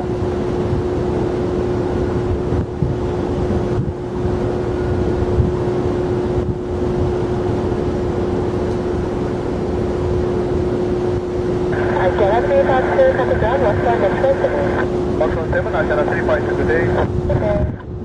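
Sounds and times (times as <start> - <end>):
wind on microphone: 0.0 - 8.6, 13.2 - 18.0
jet engines running: 0.0 - 18.0.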